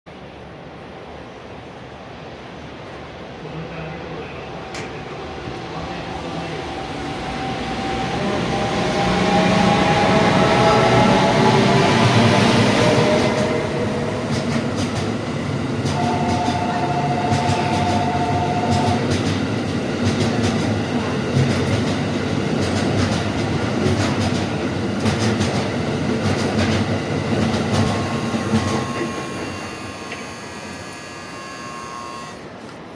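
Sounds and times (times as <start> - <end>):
train wheels clattering over rail joints: 18.7 - 30.2
two-note tone: 28.4 - 32.4.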